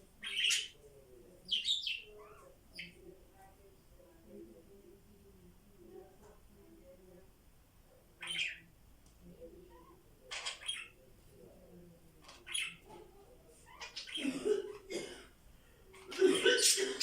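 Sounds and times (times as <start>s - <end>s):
parrots squawking: 0.2s - 0.8s, 8.2s - 8.6s, 9.7s - 11.0s, 12.3s - 12.8s, 13.6s - 14.9s.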